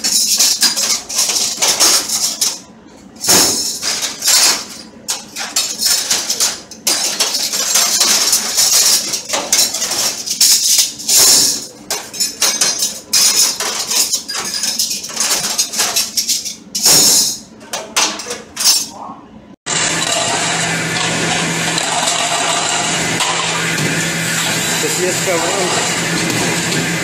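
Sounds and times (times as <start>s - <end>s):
cutlery clattering on steel: 0.0s - 19.0s.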